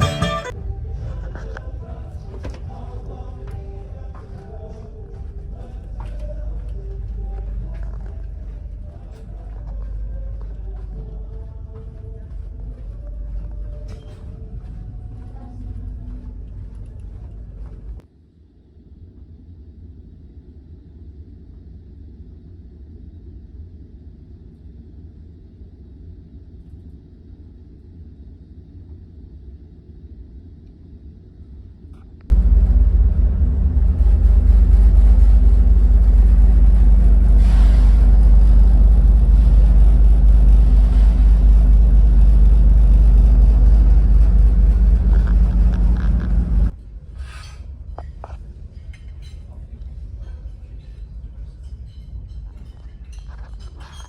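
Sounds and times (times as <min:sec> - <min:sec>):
ferry engines droning: 0:00.0 - 0:18.0, 0:32.2 - 0:47.0.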